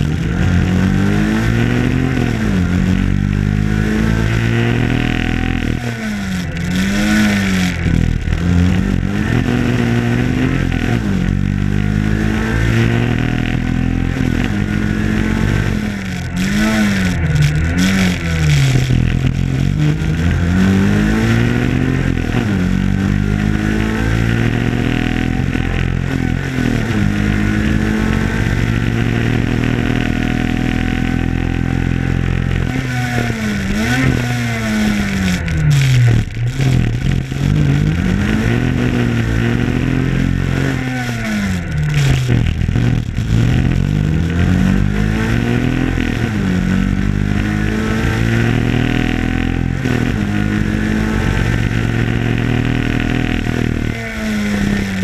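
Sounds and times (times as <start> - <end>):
rally car engine revving hard: 0.0 - 55.0.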